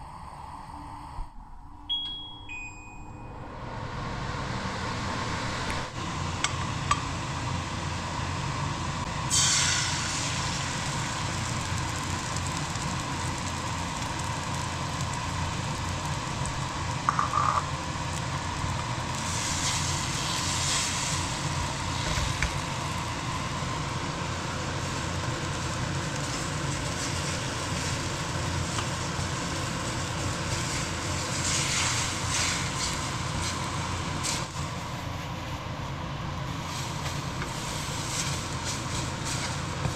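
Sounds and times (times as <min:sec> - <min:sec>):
eggs sizzling in a pan: 0:09.1 - 0:34.5.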